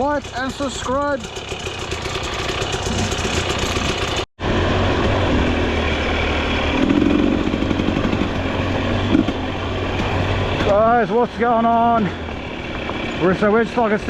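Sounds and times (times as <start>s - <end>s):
dirt bike engines idling: 0.0s - 14.0s.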